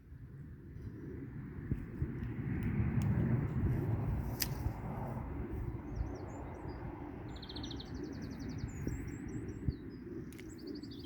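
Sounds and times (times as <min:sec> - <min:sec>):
steady low rumble: 0:00.0 - 0:11.0
songbirds twittering: 0:05.6 - 0:11.0.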